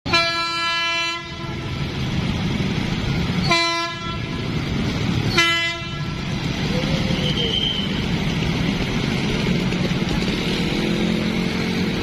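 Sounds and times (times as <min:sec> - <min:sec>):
train horn blasts: 0:00.1 - 0:01.8, 0:03.4 - 0:04.5, 0:05.3 - 0:06.2
road traffic rumble: 0:00.1 - 0:12.0.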